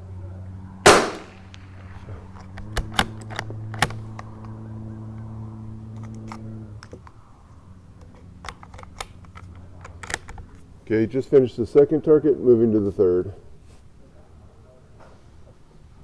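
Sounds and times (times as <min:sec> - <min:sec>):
low hum: 0:00.0 - 0:07.9
rifle bolt clicking: 0:00.9 - 0:01.4, 0:08.0 - 0:10.5
gunshot: 0:00.9 - 0:01.5.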